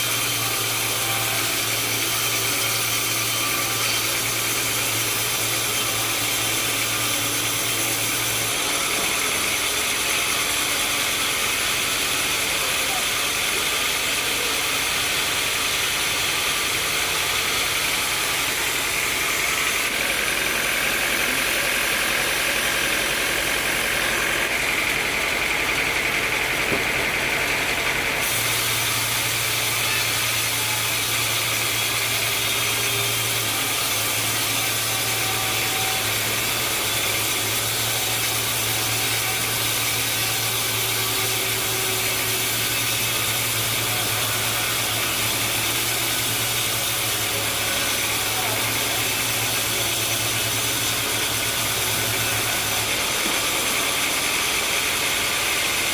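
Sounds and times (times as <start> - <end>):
sawmill machinery droning: 0.0 - 55.9.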